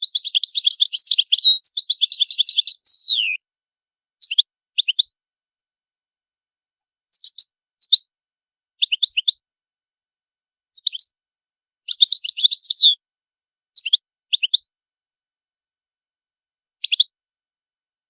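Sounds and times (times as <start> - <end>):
goldfinch singing twittering notes: 0.0 - 3.4, 11.9 - 13.0.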